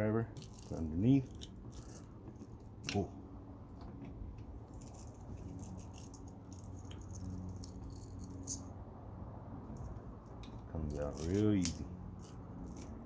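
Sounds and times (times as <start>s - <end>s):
metallic clicks and scrapes: 0.3s - 3.1s, 4.7s - 8.8s, 9.7s - 13.0s.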